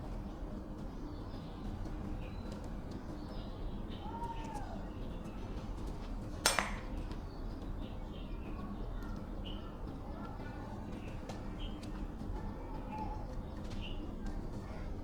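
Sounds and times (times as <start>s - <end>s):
small birds chirping: 0.0s - 15.0s
sharp knock: 6.5s - 7.0s.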